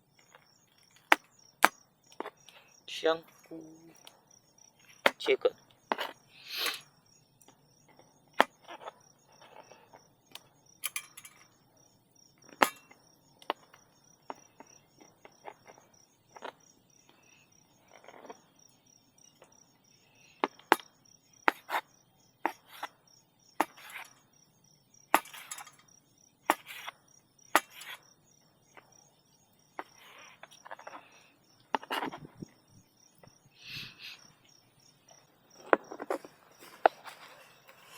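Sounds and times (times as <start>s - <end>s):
faint insect chirp: 0.0s - 37.9s.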